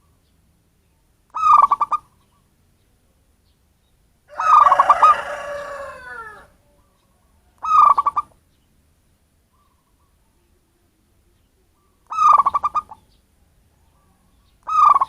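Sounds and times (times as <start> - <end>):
dove cooing stutter: 1.4 - 2.1, 7.6 - 8.3, 12.1 - 13.0, 14.7 - 15.0
long falling bird call: 4.3 - 8.4.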